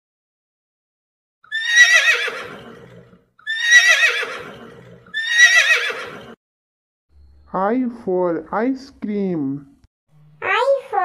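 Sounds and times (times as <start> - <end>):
horse whinnying: 1.5 - 6.4.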